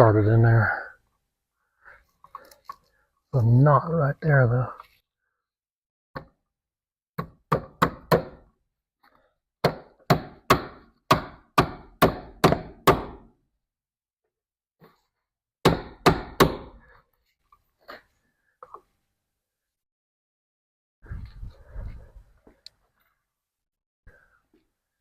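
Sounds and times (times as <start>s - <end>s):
hammer knocking staple into wood: 7.2s - 8.4s, 9.6s - 13.3s, 15.7s - 16.8s.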